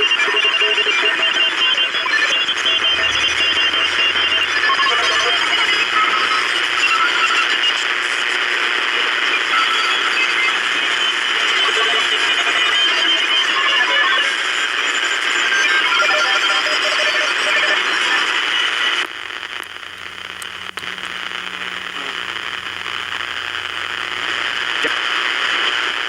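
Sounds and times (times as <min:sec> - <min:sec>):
choppy radio tone fragments: 0:00.0 - 0:26.0
radio static hiss: 0:00.0 - 0:26.0
low steady hum: 0:02.3 - 0:08.9, 0:19.0 - 0:25.8.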